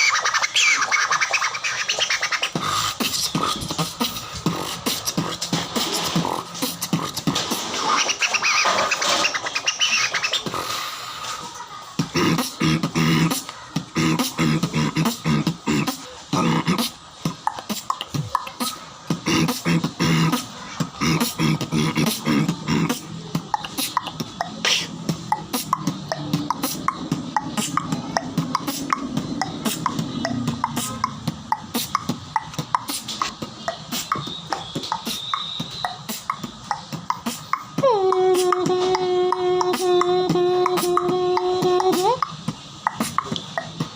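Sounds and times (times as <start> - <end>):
vocal beatboxing: 0.0 - 43.9
hummed pitch: 21.0 - 42.3.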